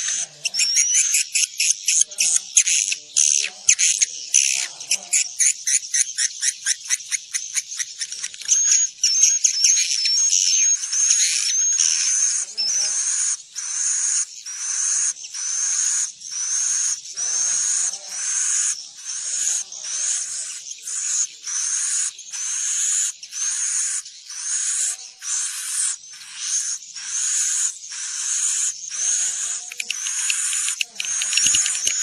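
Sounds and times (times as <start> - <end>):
swiftlet chirring twitter: 0.0 - 32.0.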